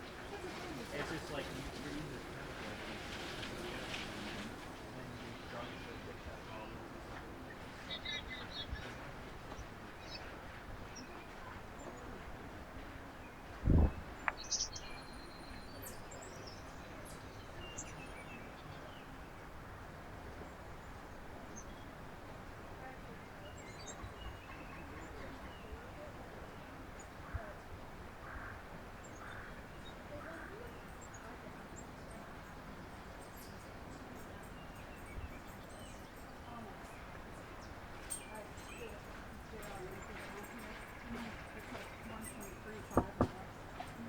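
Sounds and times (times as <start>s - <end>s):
small birds chirping: 0.0s - 12.3s, 13.1s - 19.5s, 22.8s - 27.5s, 28.3s - 44.0s
dull low thump: 13.6s - 14.4s.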